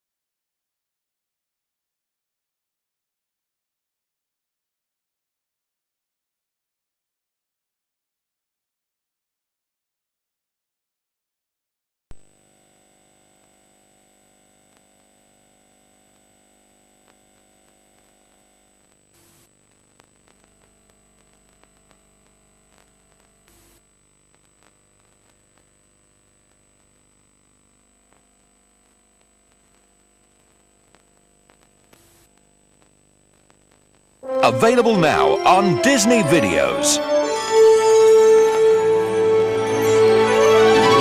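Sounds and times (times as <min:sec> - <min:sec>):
tape hiss and hum: 0:12.1 - 0:41.0.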